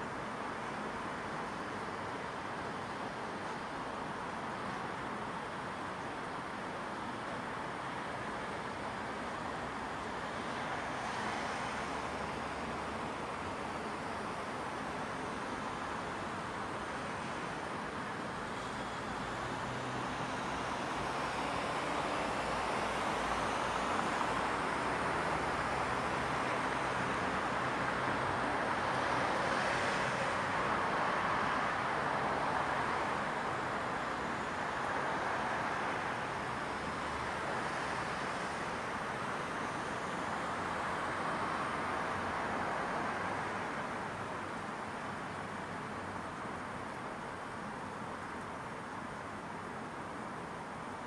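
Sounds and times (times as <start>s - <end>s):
distant road traffic: 0.0s - 51.0s.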